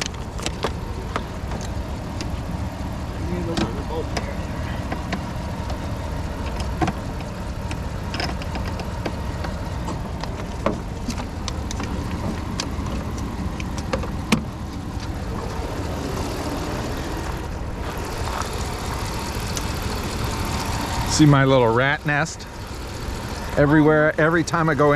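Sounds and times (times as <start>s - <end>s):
sharp metal clicks and knocks: 0.0s - 2.4s, 6.4s - 15.3s
vehicle engine idling: 0.0s - 24.9s.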